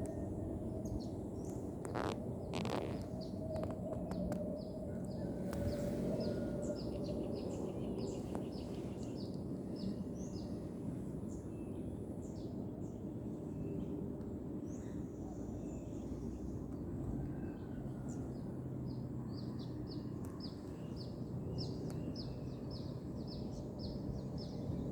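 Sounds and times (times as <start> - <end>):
small birds chirping: 0.8 - 14.0.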